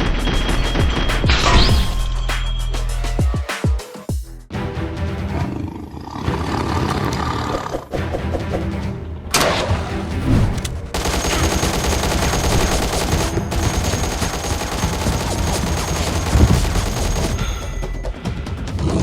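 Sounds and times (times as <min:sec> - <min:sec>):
background music: 0:00.0 - 0:19.0
rapid machine gun fire: 0:10.9 - 0:18.0.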